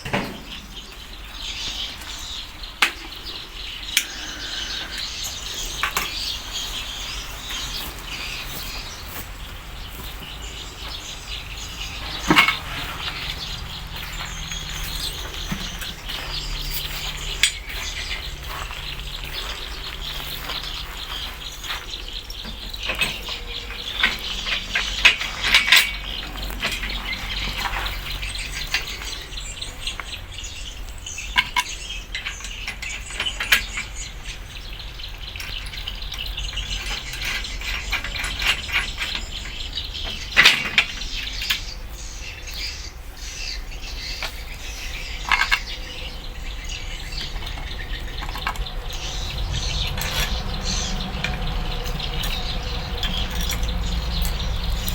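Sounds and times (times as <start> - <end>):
steady low hum: 0.0 - 31.3, 41.7 - 54.9
metallic clinks of tools: 47.3 - 54.9.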